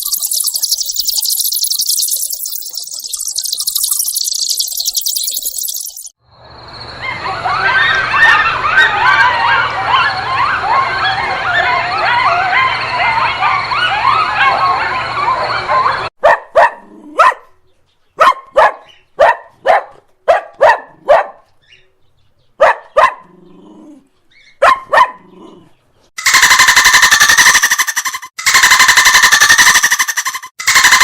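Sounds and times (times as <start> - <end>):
high whining calls: 0.0 - 6.1
dog barking: 8.1 - 17.6, 18.2 - 21.5, 22.6 - 23.3, 24.6 - 25.4.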